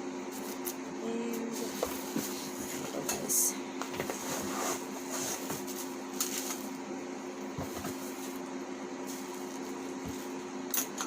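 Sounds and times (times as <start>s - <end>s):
steady electric hum: 0.0s - 11.0s.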